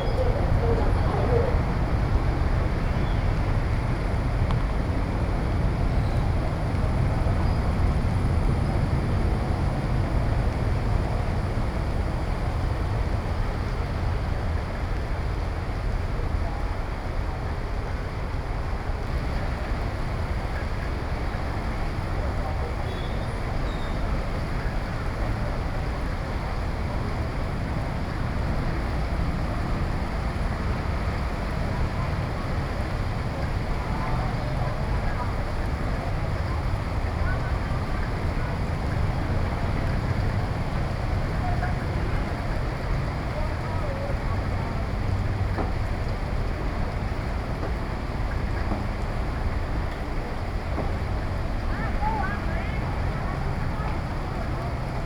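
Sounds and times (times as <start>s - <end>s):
wind buffeting microphone: 0.0s - 13.9s
heavy rain: 0.0s - 55.0s
strong wind: 0.0s - 55.0s.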